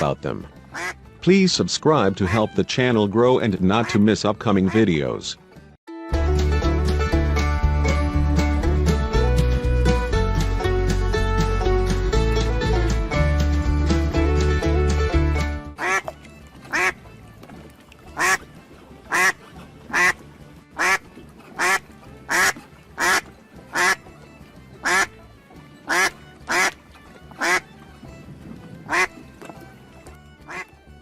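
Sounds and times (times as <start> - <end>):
banjo country music: 0.0 - 31.0
duck quacking: 0.7 - 1.0, 2.2 - 2.4, 3.8 - 4.8, 15.8 - 16.1, 16.7 - 17.0, 18.1 - 18.4, 19.1 - 20.2, 20.8 - 24.0, 24.8 - 25.1, 25.8 - 26.8, 27.4 - 27.6, 28.9 - 29.2, 30.4 - 30.7.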